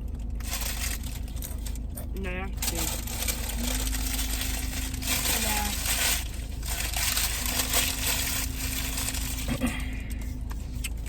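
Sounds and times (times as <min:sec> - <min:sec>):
steady low hum: 0:00.0 - 0:11.0
packaging rustling and crinkling: 0:00.2 - 0:02.0, 0:02.6 - 0:09.6.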